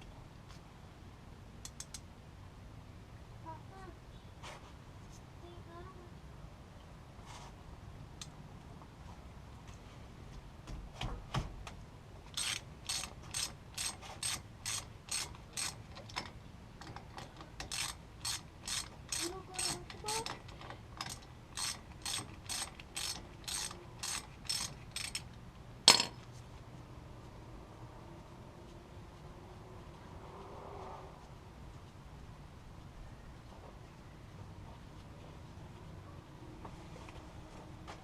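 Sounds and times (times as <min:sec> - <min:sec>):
socket ratchet clicking: 0:12.4 - 0:25.3.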